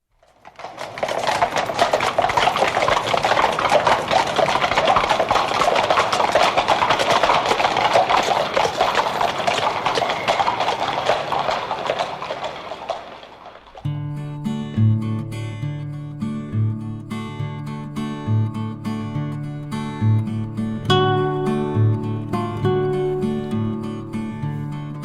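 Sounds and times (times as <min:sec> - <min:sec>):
horse hooves clip-clopping: 0:00.1 - 0:13.9.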